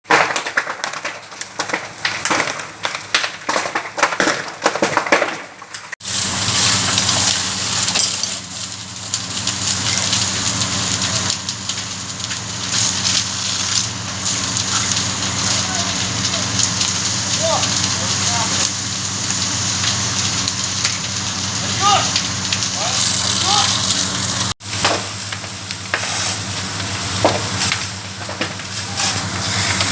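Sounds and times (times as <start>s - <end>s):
burning house crackling and popping: 0.0s - 29.9s
fire roaring: 0.1s - 29.9s
low hum: 19.1s - 24.6s.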